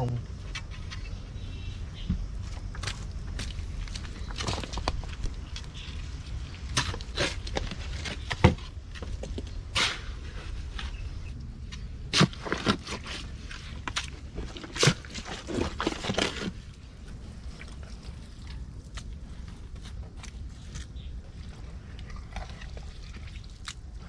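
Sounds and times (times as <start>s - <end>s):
footsteps through mud: 2.4s - 8.3s.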